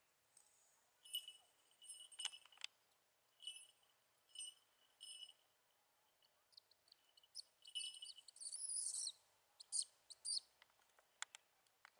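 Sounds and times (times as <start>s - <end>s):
small bells jingling: 1.0s - 2.7s, 3.3s - 6.4s, 7.0s - 9.1s
bird calls: 6.5s - 10.5s.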